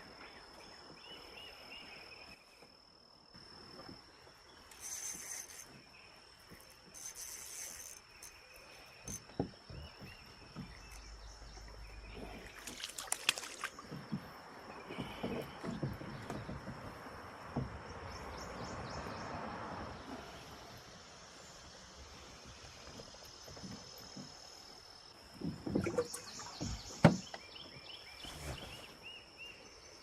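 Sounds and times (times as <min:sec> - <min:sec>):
insects droning: 0:00.0 - 0:30.0
hissing splashes: 0:12.1 - 0:13.8.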